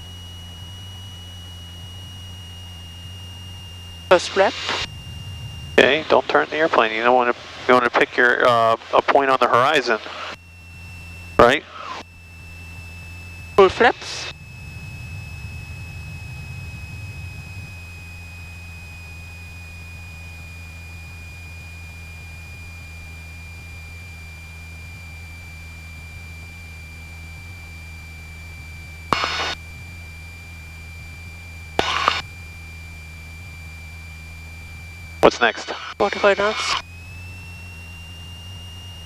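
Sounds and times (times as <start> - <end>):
low aircraft engine drone: 0.0 - 39.0
stall warning horn high tone: 0.0 - 39.0
bursts of radio static: 4.1 - 4.9, 5.8 - 10.4, 11.4 - 12.0, 13.6 - 14.3, 29.1 - 29.6, 31.8 - 32.2, 35.2 - 36.8.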